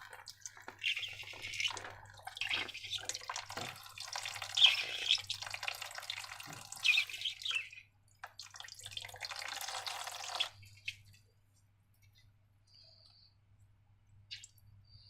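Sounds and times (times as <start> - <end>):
liquid pouring and trickling: 0.0 - 11.1.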